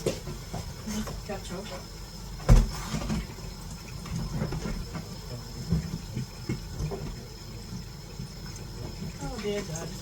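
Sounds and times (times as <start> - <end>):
low knocks in kitchen: 2.4 - 3.3, 4.2 - 7.2.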